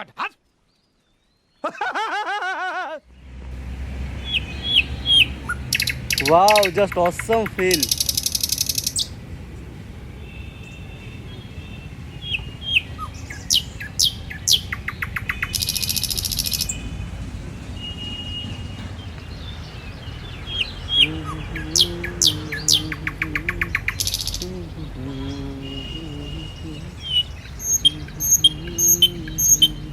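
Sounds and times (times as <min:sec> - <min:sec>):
birds chattering trills: 0:04.0 - 0:09.2, 0:10.2 - 0:17.0, 0:17.7 - 0:29.9
birds whistling: 0:04.1 - 0:09.2, 0:10.3 - 0:16.9, 0:17.8 - 0:29.9.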